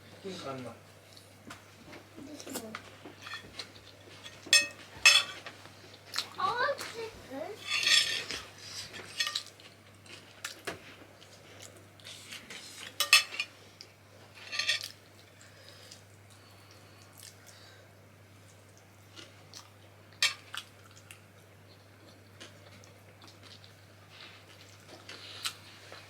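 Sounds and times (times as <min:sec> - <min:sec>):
cutlery and dishes clinking: 0:03.1 - 0:05.5, 0:07.6 - 0:09.6, 0:12.8 - 0:13.5, 0:14.4 - 0:15.0.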